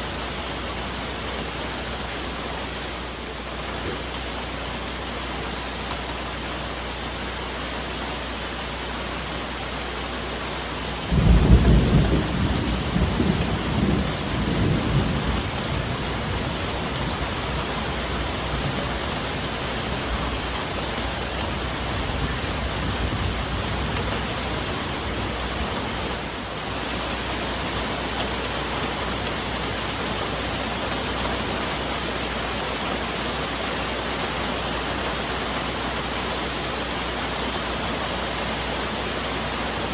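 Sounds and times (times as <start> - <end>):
rain falling on foliage: 0.0 - 39.9
thunder crack and rumble: 11.1 - 26.1.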